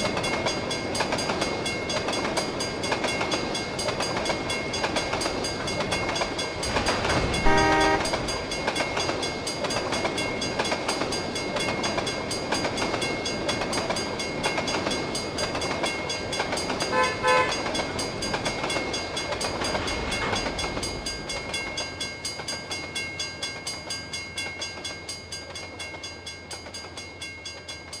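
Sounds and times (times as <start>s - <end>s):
train wheels clicking over rail joints: 0.0s - 16.9s
train horn blast: 6.7s - 8.5s, 16.9s - 17.7s.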